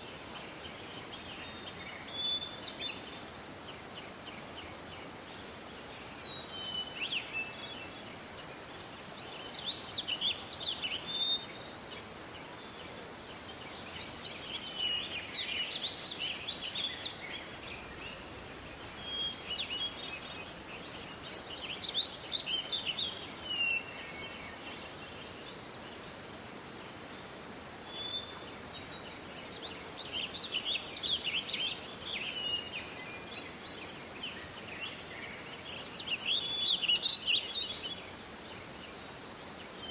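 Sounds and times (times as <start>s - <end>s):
background hiss: 0.0s - 39.9s
songbird chirping: 0.0s - 39.9s.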